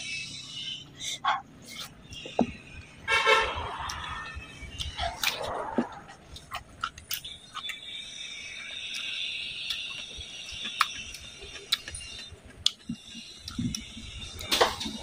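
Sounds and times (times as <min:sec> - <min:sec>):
person chewing food: 0:01.0 - 0:02.8, 0:03.4 - 0:15.0
wet lip smacks and mouth clicks: 0:10.6 - 0:14.0.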